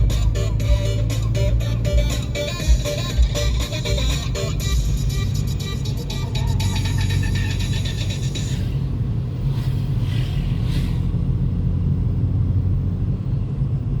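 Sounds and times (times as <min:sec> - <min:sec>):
background music: 0:00.0 - 0:08.8
vehicle rumble: 0:00.0 - 0:14.0.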